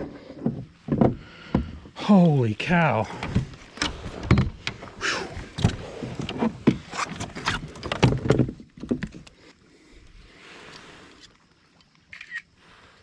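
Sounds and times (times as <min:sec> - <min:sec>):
person exhaling whew: 0:05.0 - 0:05.4.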